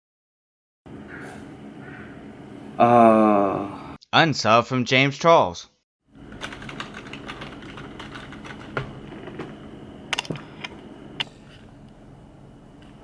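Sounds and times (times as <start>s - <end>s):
computer keyboard typing: 6.2s - 9.6s.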